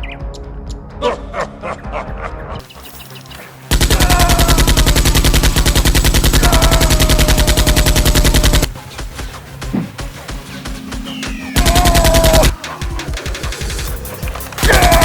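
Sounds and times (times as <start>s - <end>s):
machine-gun fire: 3.7s - 8.7s, 11.6s - 12.6s, 14.6s - 15.0s.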